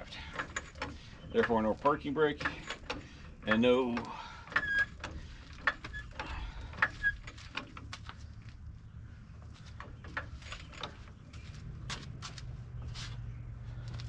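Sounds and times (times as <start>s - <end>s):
metal clicks and knocks: 0.2s - 8.2s, 9.7s - 12.1s
short squeaks: 4.5s - 7.5s.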